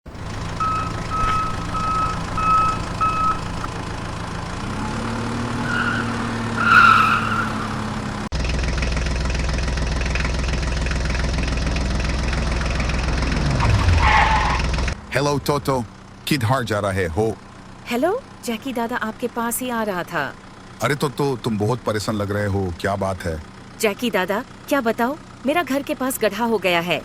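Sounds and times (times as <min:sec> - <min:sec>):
deep steady engine rumble: 0:00.0 - 0:27.0
heavy vehicle engine running: 0:00.0 - 0:27.0
reversing beeper: 0:00.2 - 0:03.7.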